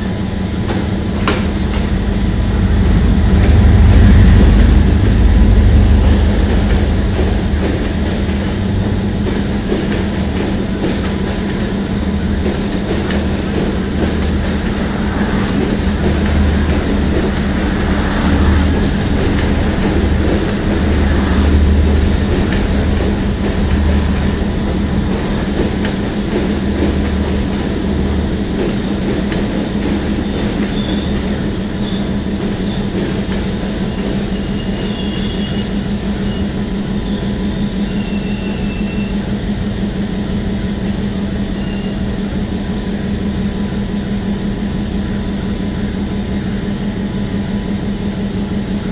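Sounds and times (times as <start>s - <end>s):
pulsing low rumble: 0.0s - 38.0s
diesel train engine hum: 0.0s - 48.9s
high wheel squeals: 30.6s - 31.2s, 33.8s - 39.2s.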